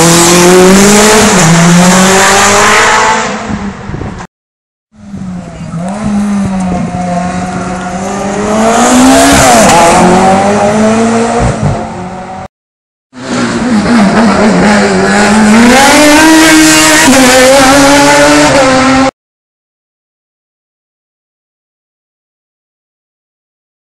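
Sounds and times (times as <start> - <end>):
race car engine at full throttle: 0.0 - 4.3, 5.0 - 12.5, 13.2 - 19.1.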